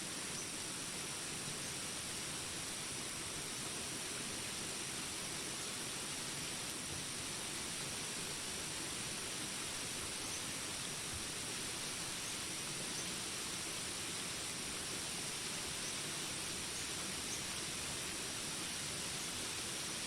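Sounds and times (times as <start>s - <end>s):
rain hiss: 0.0s - 20.0s.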